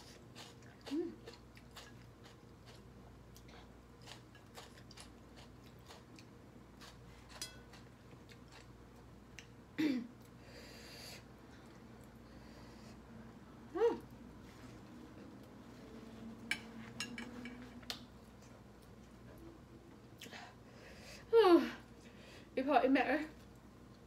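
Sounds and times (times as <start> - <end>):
person chewing food: 0.0 - 9.6.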